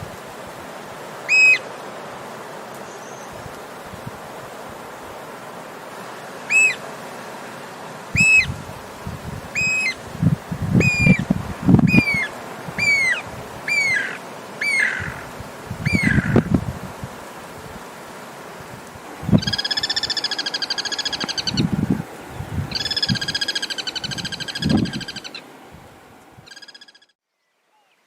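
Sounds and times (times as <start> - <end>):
bird calling: 1.3 - 1.7, 6.5 - 6.8, 8.1 - 8.6, 9.6 - 10.0, 10.8 - 16.6, 19.2 - 25.5, 26.4 - 27.2.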